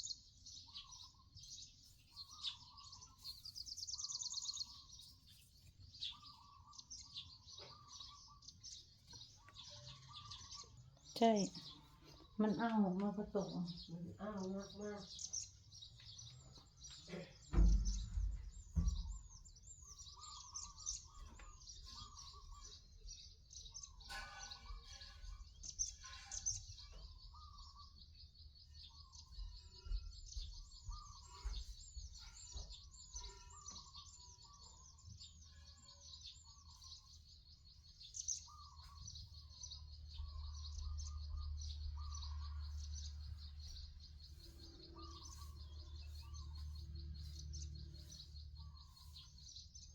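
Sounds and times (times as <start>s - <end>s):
birds chirping: 0.0s - 49.9s
loud thumps: 17.5s - 19.4s.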